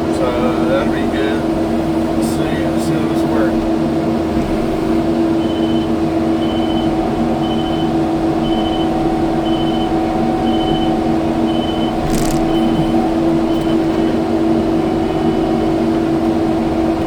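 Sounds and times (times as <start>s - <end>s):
reverse alarm beeping: 5.4s - 13.8s
brief rattling: 12.0s - 13.0s.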